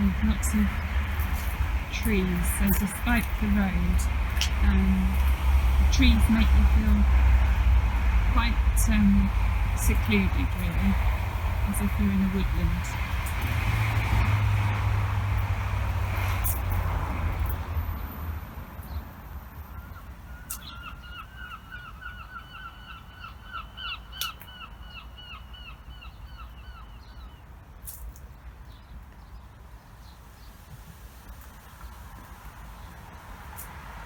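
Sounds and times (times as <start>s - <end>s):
passing vehicle rumble: 0.0s - 20.4s.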